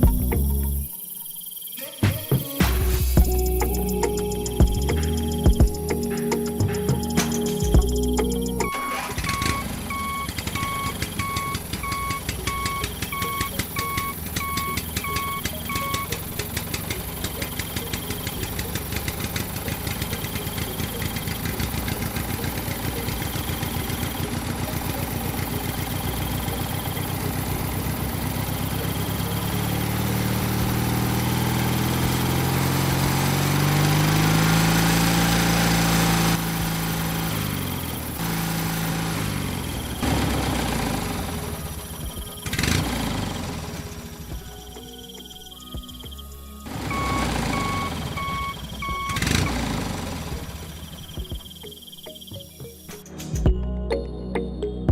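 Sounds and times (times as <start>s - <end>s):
small engine running: 8.6s - 44.4s, 46.6s - 51.5s.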